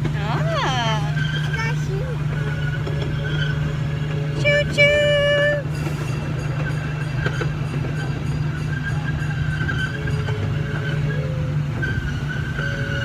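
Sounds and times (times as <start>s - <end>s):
ride train engine and wheels rumbling: 0.0s - 13.0s.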